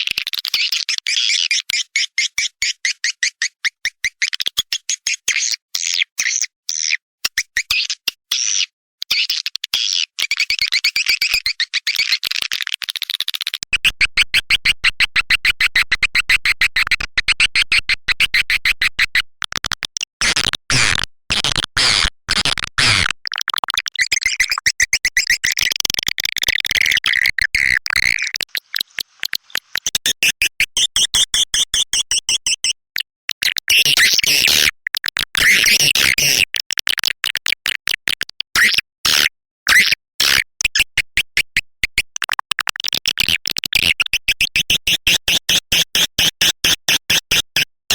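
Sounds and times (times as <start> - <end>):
electronic bird chirps and clicks: 0.0 - 12.8, 22.8 - 38.8.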